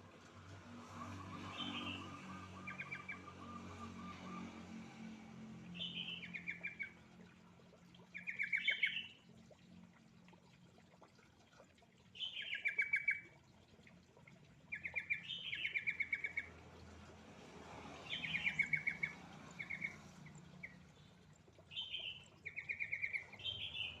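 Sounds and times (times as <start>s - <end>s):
recorded bird song: 0.8s - 7.0s, 8.0s - 9.2s, 12.1s - 13.3s, 14.6s - 16.6s, 17.9s - 24.0s.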